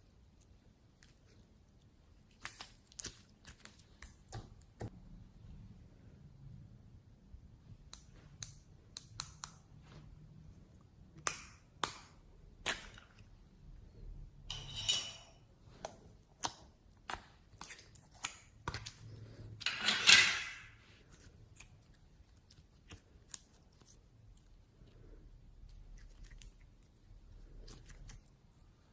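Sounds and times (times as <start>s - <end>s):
slime crackling squelches: 0.0s - 4.9s, 20.8s - 28.9s.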